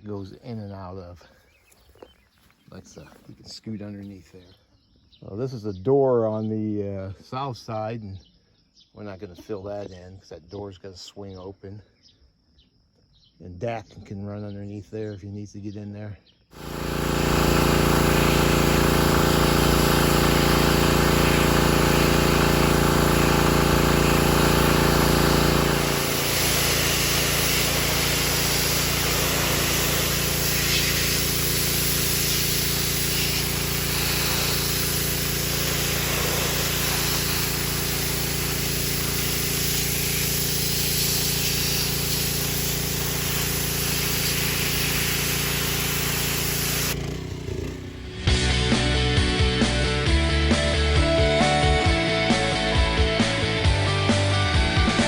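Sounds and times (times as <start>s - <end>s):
engine running: 16.6s - 49.0s.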